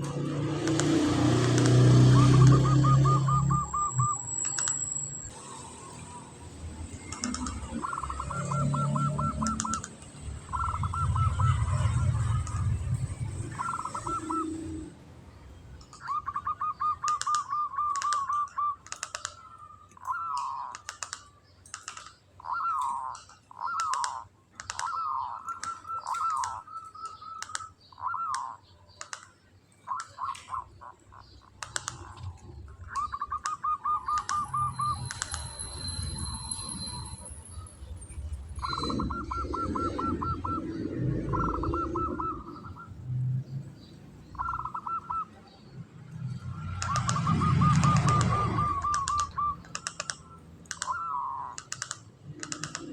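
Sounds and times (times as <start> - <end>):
sharp clicks: 0.0 - 2.6, 4.0 - 5.4, 6.7 - 14.4, 17.0 - 30.6, 31.2 - 37.2, 46.1 - 52.9
dove trilling and cooing: 0.5 - 6.3, 7.0 - 15.0, 15.8 - 21.4, 22.4 - 29.0, 29.7 - 52.9.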